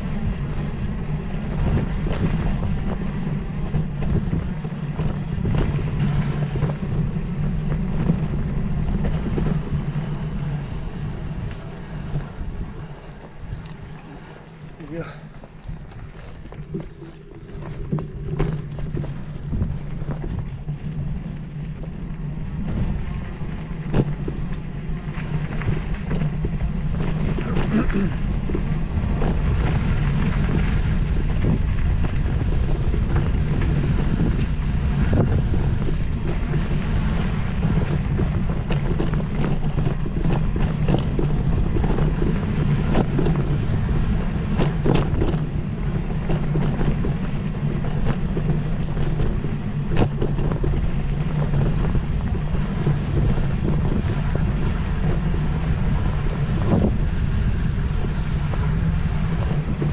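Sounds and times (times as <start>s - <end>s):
steady low rumble: 0.0s - 59.9s
wind buffeting microphone: 0.0s - 59.9s.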